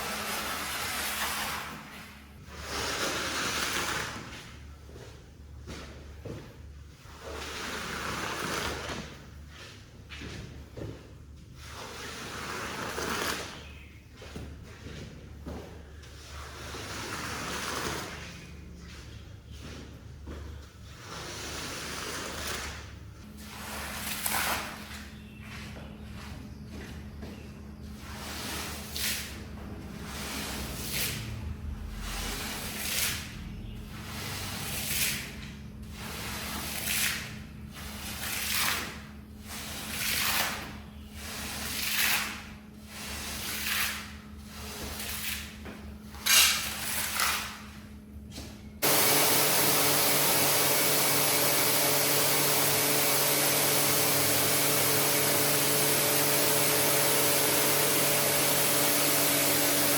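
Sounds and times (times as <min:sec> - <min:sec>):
brush scraping wet rug: 0:00.0 - 0:04.5, 0:07.0 - 0:09.7, 0:11.6 - 0:13.8, 0:15.8 - 0:19.0, 0:20.9 - 0:25.0, 0:35.9 - 0:45.8, 0:48.8 - 0:59.9
loud steady machine noise: 0:48.8 - 0:59.9.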